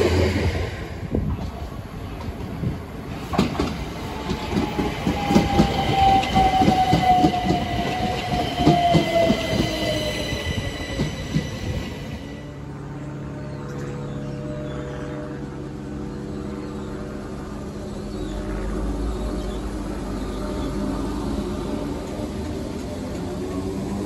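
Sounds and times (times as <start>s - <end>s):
train whine falling in pitch: 4.2s - 12.6s.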